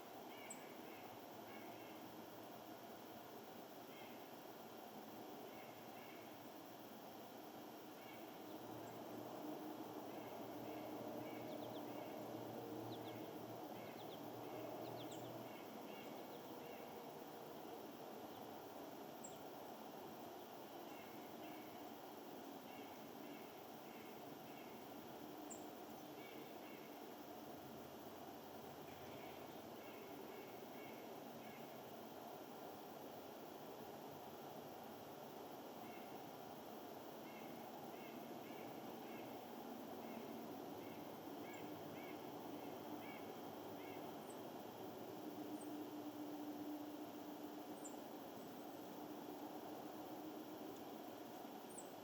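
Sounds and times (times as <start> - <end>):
small birds chirping: 0.0 - 2.6, 7.9 - 9.2, 9.8 - 32.9, 35.8 - 46.2, 46.9 - 52.0
outdoor background hiss: 0.0 - 52.0.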